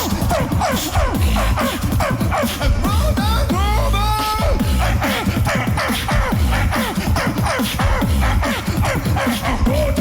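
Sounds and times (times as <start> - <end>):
deep bass: 0.0 - 2.0, 2.6 - 5.1, 6.1 - 6.7, 7.8 - 8.4, 9.5 - 10.0
beatbox vocal sweeps: 0.0 - 10.0.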